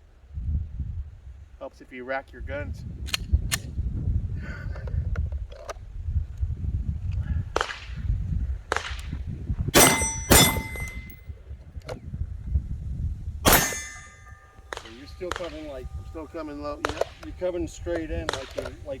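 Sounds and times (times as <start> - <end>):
wind rumble on microphone: 0.0 - 1.6, 2.2 - 19.0
handgun shots: 9.8 - 11.2, 13.5 - 15.8
high ringing: 9.8 - 11.3, 13.5 - 18.4.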